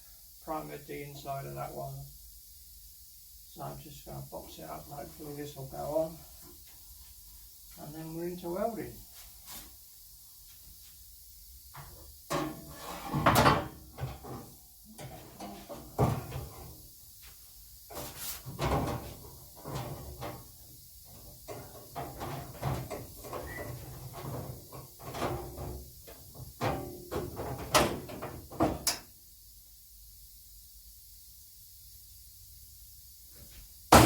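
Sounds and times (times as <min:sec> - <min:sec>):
sheet metal clunks and scrapes: 0:11.8 - 0:16.8, 0:17.9 - 0:20.5, 0:21.1 - 0:29.0.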